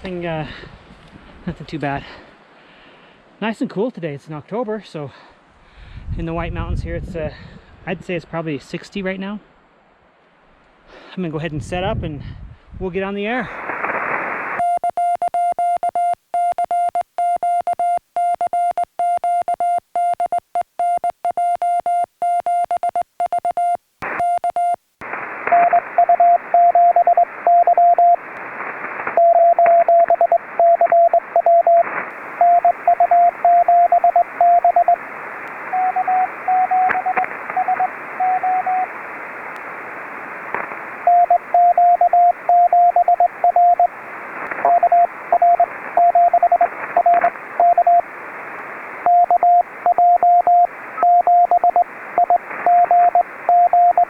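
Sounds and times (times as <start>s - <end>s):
radio band hiss: 13.4s - 14.6s, 24.0s - 24.3s, 25.0s - 54.0s
morse code beeps: 14.6s - 24.8s, 25.5s - 28.2s, 29.2s - 35.0s, 35.7s - 38.9s, 41.0s - 43.9s, 44.6s - 48.0s, 49.0s - 54.0s.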